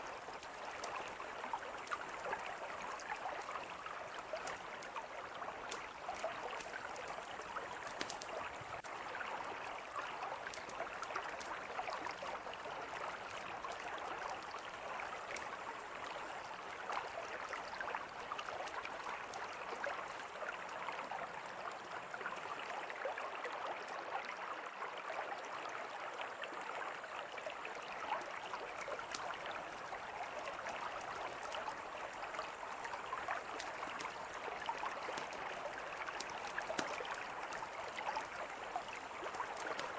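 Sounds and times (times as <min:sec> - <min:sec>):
river flowing: 0:00.0 - 0:39.9
campfire crackling: 0:00.2 - 0:12.2, 0:28.2 - 0:39.9.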